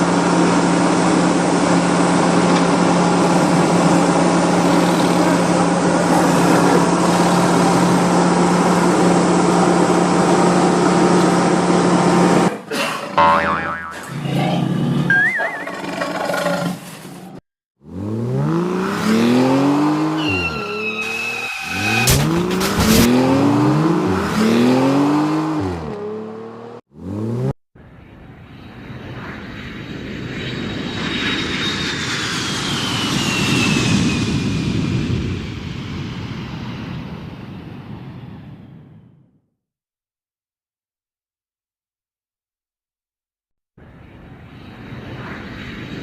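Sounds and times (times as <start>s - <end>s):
engine revving: 17.8s - 27.6s.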